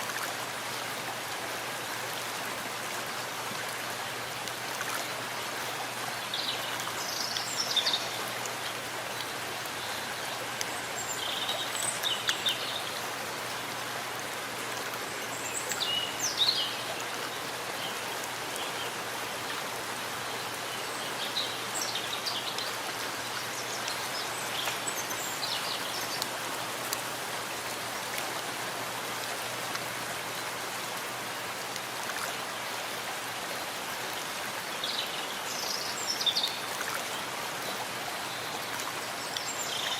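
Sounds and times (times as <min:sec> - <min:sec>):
rain pattering: 0:25.7 - 0:29.9.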